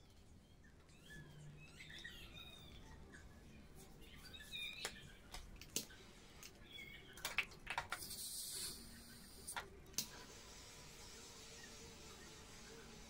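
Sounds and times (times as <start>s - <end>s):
faint bird chirps: 0.0s - 7.2s.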